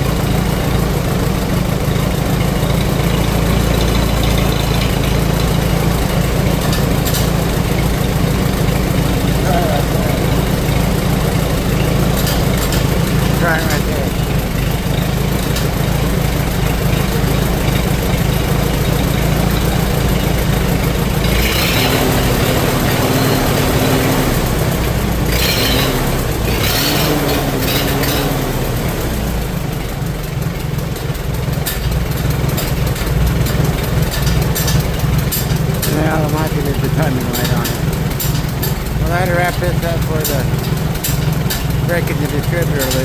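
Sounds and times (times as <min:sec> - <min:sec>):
tractor engine idling: 0:00.0 - 0:43.0.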